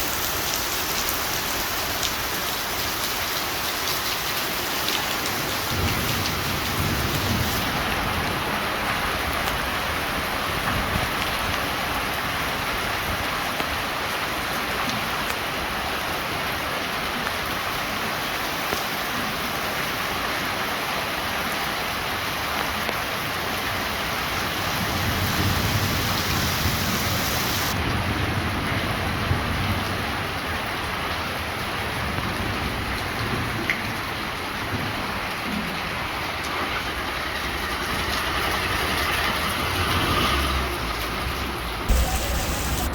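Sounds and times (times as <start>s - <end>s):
heavy rain hissing: 0.0s - 8.8s, 23.7s - 27.9s, 41.9s - 42.9s.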